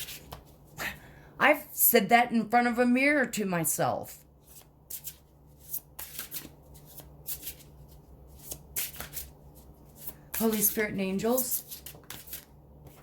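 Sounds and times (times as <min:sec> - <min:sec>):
cards being shuffled: 0:00.0 - 0:00.8, 0:04.4 - 0:13.0
faint steady hum: 0:00.0 - 0:13.0.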